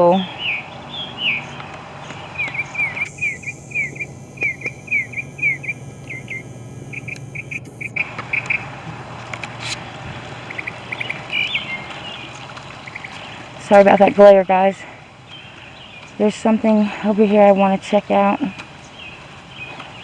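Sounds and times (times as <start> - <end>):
small bird chirping: 0.1 - 8.7, 10.5 - 14.2.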